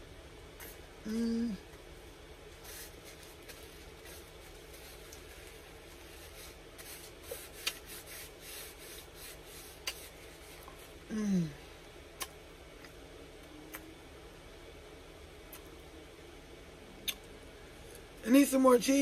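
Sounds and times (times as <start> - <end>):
person humming mmm: 0.6 - 1.7, 11.0 - 11.7.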